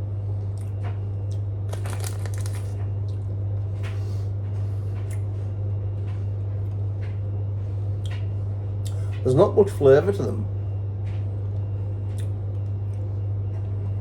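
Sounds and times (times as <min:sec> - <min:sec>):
steady low hum: 0:00.0 - 0:14.0
crackers being chewed: 0:00.4 - 0:04.0, 0:11.1 - 0:13.6.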